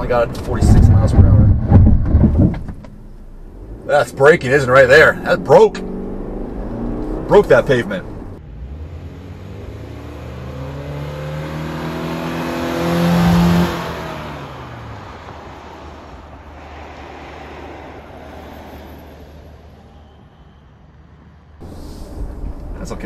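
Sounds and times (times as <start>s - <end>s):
car engine accelerating past: 5.0s - 19.4s.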